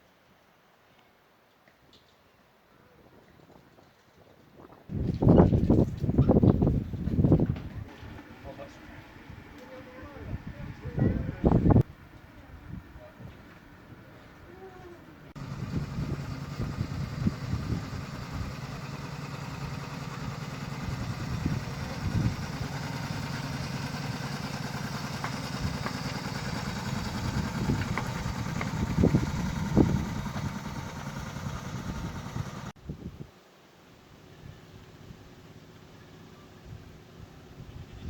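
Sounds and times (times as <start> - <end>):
petrol engine running: 7.8 - 11.8, 15.3 - 32.8.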